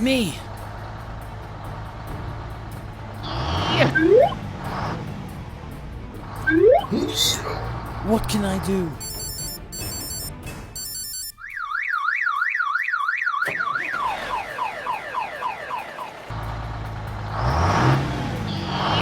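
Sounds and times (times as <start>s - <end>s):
engine drone revving: 0.0s - 8.2s, 13.9s - 19.0s
warbling siren alarm: 3.9s - 4.4s, 9.0s - 16.3s.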